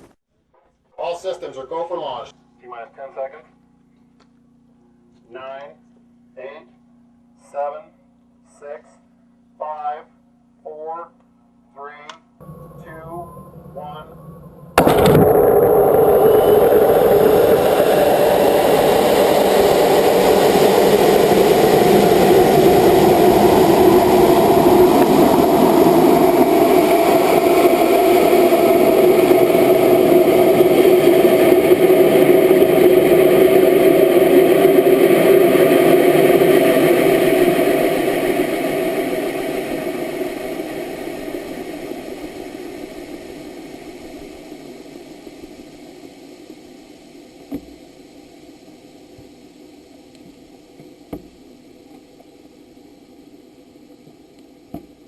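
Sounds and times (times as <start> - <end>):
rocket motor roaring: 12.4 - 51.9.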